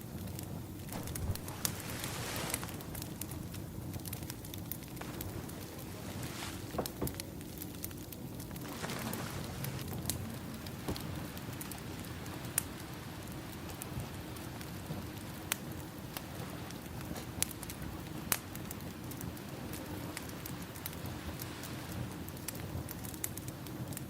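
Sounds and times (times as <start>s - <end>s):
crackling wood fire: 0.0s - 24.0s
ocean waves: 1.0s - 3.2s.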